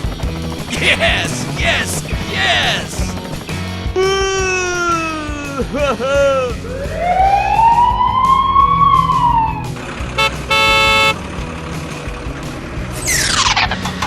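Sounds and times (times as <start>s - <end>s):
low engine rumble: 0.0s - 14.0s
cartoon siren wail: 6.7s - 9.8s
cartoon horn honk: 10.2s - 11.2s.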